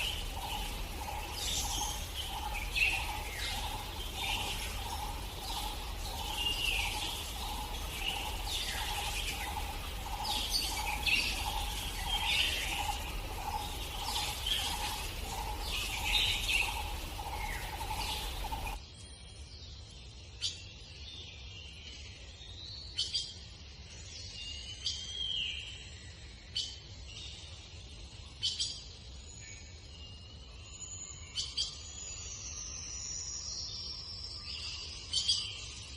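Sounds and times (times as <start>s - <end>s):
steady pulsing hum: 0.0s - 18.8s.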